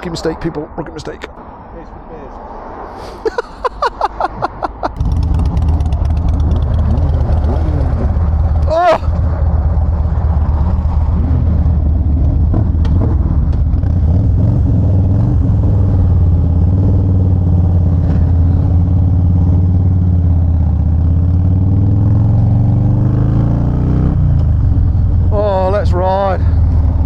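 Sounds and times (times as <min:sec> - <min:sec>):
motorcycle engine running: 0:05.0 - 0:15.0.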